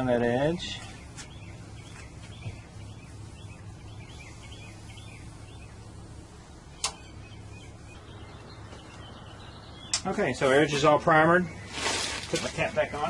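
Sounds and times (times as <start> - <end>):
low outdoor hum: 0.0 - 13.0
small birds chirping: 0.0 - 13.0
sharp click: 6.8 - 7.0.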